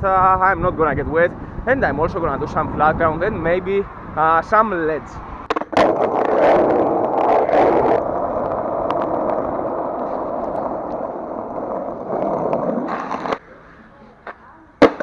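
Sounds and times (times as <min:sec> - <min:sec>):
skateboard wheels rolling on pavement: 0:00.0 - 0:15.0
skateboard clacks: 0:05.4 - 0:13.5, 0:14.1 - 0:15.0.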